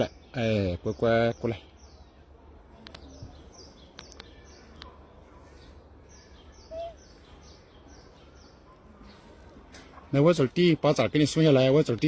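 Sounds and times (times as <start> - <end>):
small bird chirping: 0.0 - 9.5
outdoor background noise: 0.0 - 12.0.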